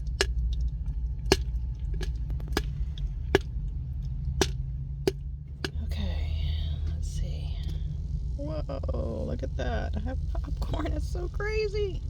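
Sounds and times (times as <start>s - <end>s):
popcorn popping: 0.0s - 5.9s
steady low hum: 0.0s - 12.0s.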